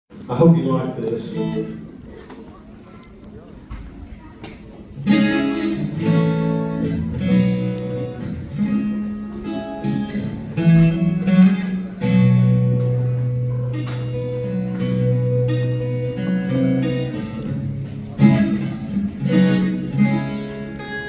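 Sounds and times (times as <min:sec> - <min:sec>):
acoustic guitar strumming chords: 0:01.2 - 0:01.9, 0:05.0 - 0:21.0.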